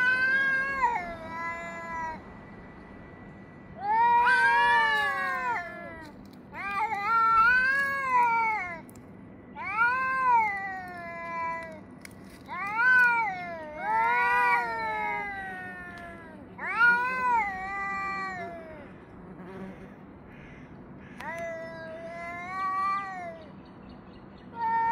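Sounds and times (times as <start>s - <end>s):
cats yowling: 0.0s - 2.2s, 3.8s - 8.8s, 9.6s - 11.8s, 12.5s - 18.8s, 24.6s - 24.9s.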